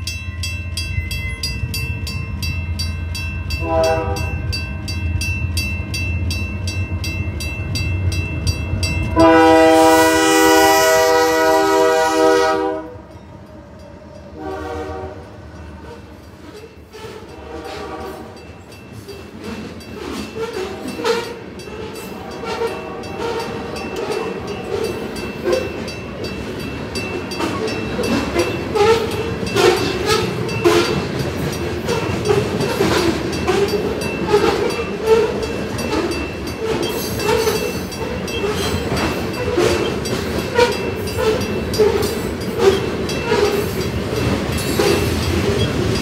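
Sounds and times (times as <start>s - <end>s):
crossing bell ringing: 0.0s - 46.0s
train wheels clacking over rail joints: 15.6s - 46.0s.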